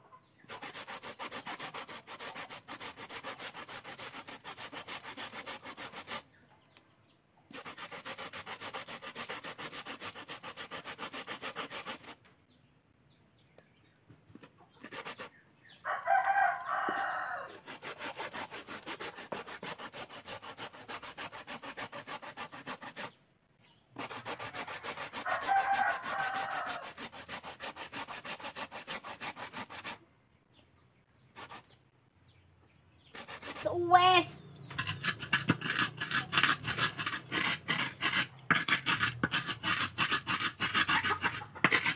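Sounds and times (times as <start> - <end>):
hand grating on metal grater: 0.5 - 6.2, 7.5 - 12.2, 14.4 - 15.3, 16.3 - 23.1, 24.0 - 30.0, 33.2 - 41.9
rooster crowing: 15.8 - 17.6, 24.8 - 27.0.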